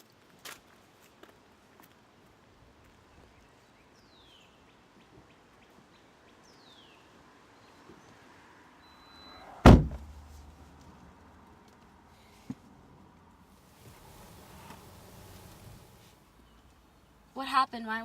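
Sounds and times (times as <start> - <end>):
door slamming: 9.6 - 10.2.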